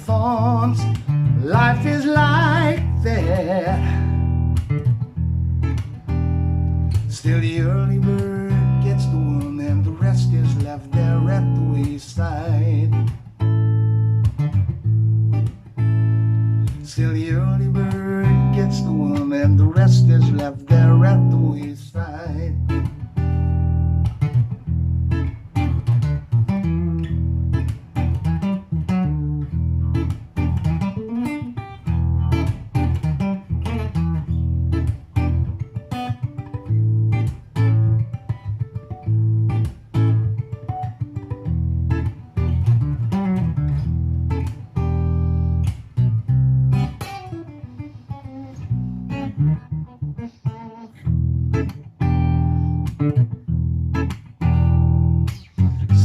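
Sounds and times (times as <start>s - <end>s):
deep sustained bass line: 0.0s - 30.8s, 51.1s - 56.0s
plucked guitar melody: 0.0s - 56.0s.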